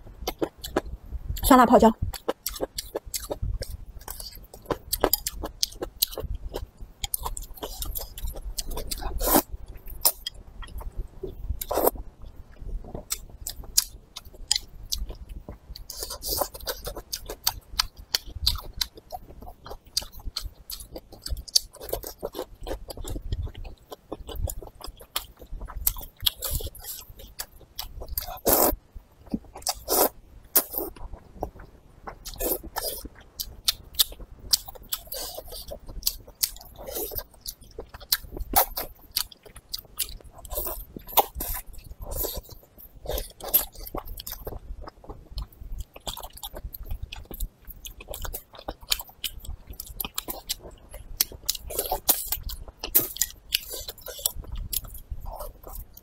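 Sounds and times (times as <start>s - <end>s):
wet chewing and smacking: 2.0s - 56.0s.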